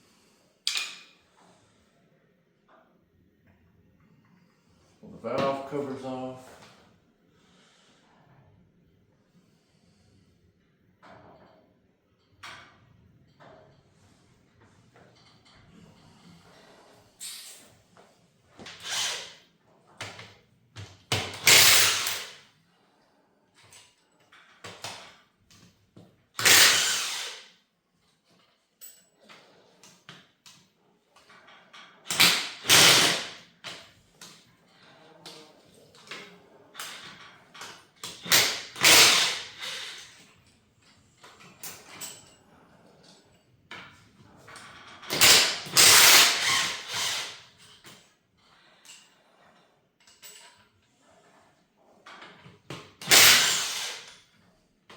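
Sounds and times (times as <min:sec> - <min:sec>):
power tool spinning bolts: 0:18.7 - 0:19.4, 0:21.1 - 0:22.4, 0:26.4 - 0:27.6, 0:32.1 - 0:33.4, 0:38.0 - 0:40.2, 0:44.9 - 0:47.8, 0:53.0 - 0:54.2.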